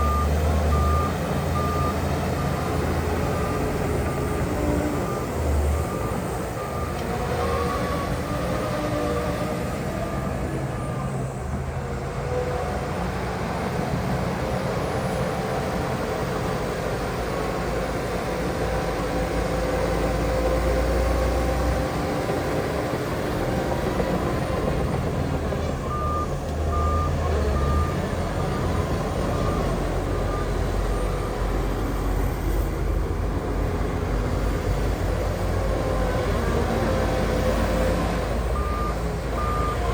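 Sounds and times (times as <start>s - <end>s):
reversing alarm beeping: 0.0s - 8.2s, 25.8s - 31.6s, 38.5s - 39.9s
heavy diesel machinery running: 0.0s - 39.9s.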